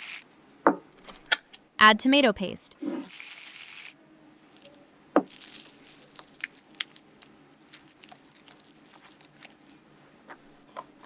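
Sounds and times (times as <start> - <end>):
small crisp clicks and crackles: 4.4 - 9.8.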